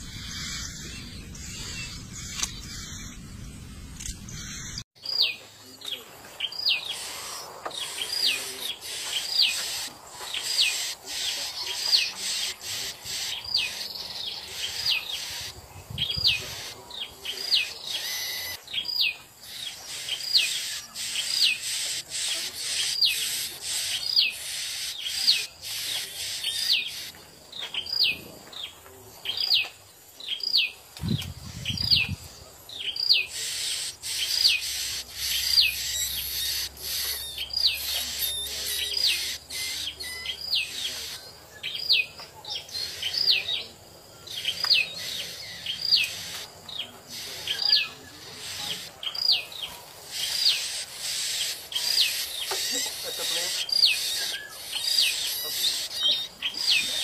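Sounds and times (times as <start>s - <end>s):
bird calling: 0.0s - 4.8s, 6.4s - 28.1s, 30.3s - 57.0s
low rumble: 0.0s - 4.8s.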